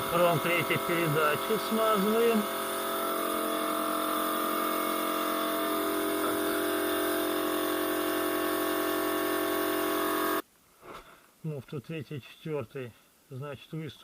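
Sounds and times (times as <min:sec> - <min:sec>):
machine hum with level tones: 0:00.0 - 0:10.4.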